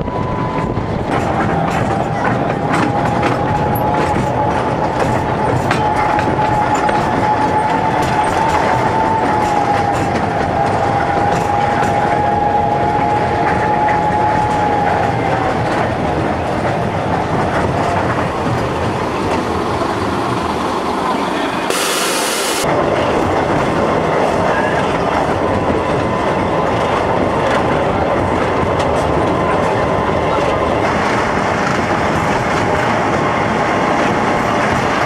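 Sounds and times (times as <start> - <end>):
wheels clicking on track: 0.0 - 21.8, 22.5 - 35.0
train running rumble: 0.0 - 35.0
steady high whine: 16.4 - 22.9.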